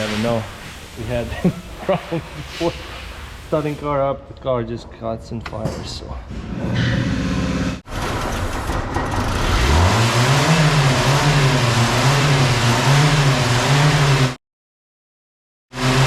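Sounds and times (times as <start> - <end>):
car engine cranking and revving: 6.8 - 14.4, 15.7 - 16.0.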